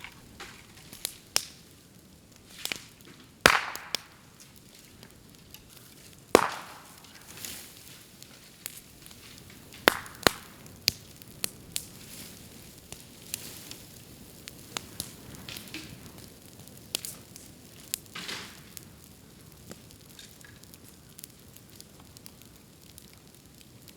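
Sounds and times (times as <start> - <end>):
bamboo crackling in a bonfire: 0.0 - 23.9
loud pops and snaps: 2.5 - 5.6, 6.3 - 7.7, 8.3 - 12.0.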